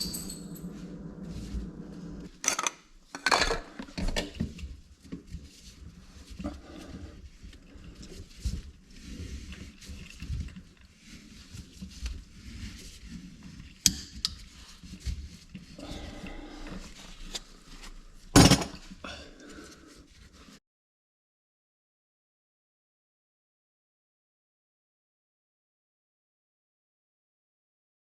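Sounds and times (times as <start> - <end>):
tools clattering and knocking: 0.0 - 1.0, 2.3 - 4.4, 18.4 - 18.9.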